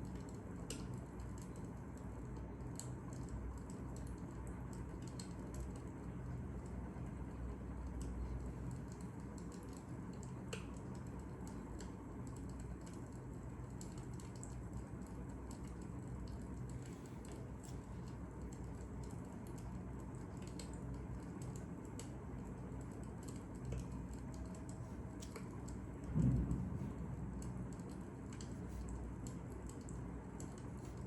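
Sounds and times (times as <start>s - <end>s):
steady low rumble: 22.4s - 31.0s.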